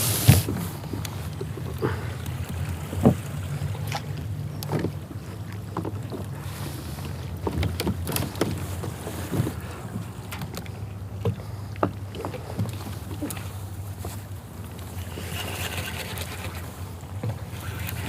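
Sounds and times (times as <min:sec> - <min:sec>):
light knocks and clicks from boat: 0:00.0 - 0:18.0
water lapping against kayak hull: 0:00.0 - 0:18.0.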